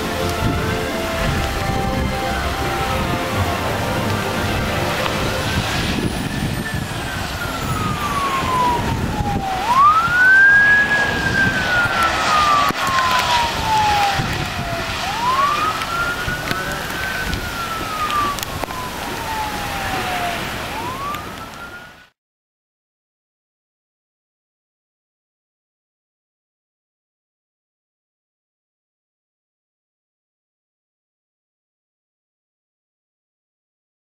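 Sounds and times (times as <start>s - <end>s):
siren wailing: 0.0s - 22.1s.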